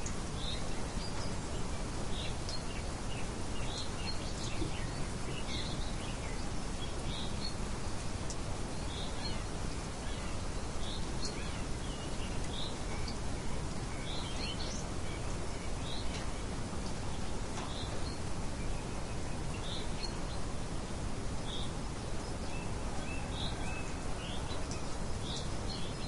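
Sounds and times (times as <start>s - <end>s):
steady background hiss: 0.0s - 26.0s
birds chirping: 0.4s - 7.6s.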